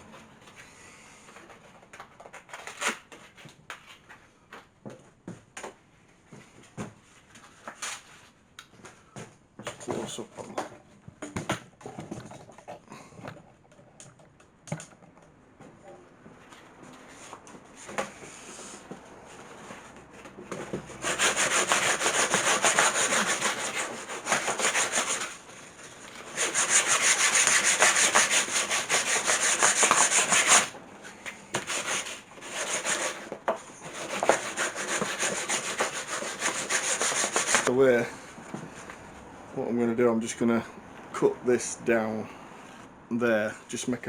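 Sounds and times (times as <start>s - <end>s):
sanding belt rasping on wood: 20.9s - 25.4s, 26.2s - 30.8s, 31.6s - 37.7s.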